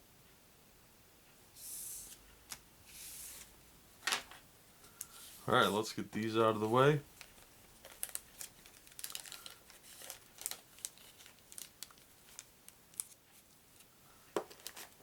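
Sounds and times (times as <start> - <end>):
plastic packaging crinkling: 5.1 - 13.2, 14.4 - 15.0.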